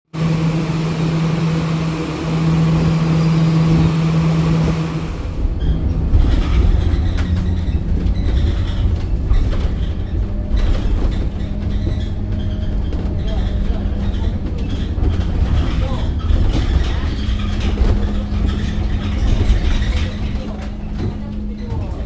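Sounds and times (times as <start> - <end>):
bus diesel engine running: 0.1 - 22.0
rattles and clicks: 5.6 - 22.0.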